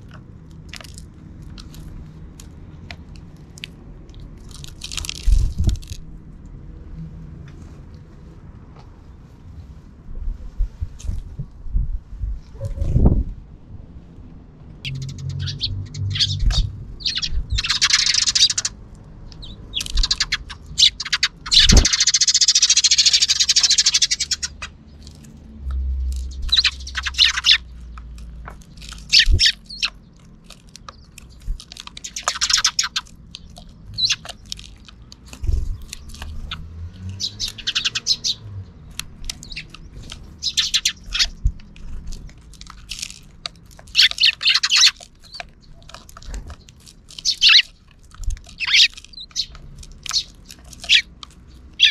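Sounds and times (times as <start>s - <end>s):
sparrows chirping: 14.8s - 51.9s.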